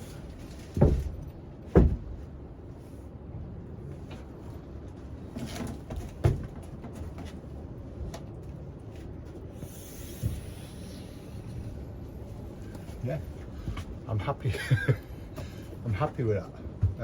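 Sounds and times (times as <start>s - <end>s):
wooden bed boards knocking: 0.8s - 2.2s.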